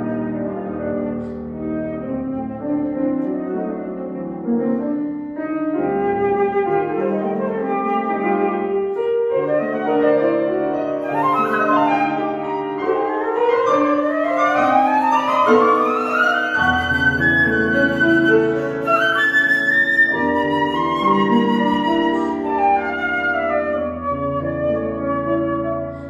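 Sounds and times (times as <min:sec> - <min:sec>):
flute melody: 0:00.0 - 0:26.0
piano chords: 0:00.0 - 0:26.0.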